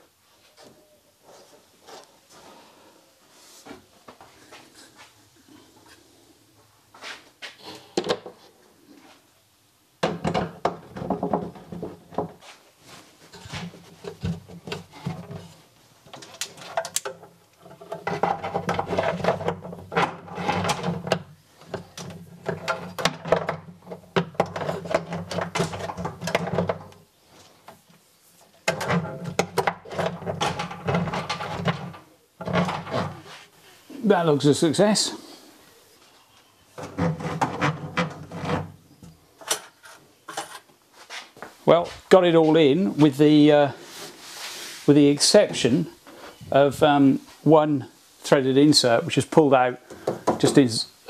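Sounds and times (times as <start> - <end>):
knocks and scrapes of plastic: 10.0 - 12.5, 13.3 - 27.0, 28.6 - 33.5, 36.8 - 39.2.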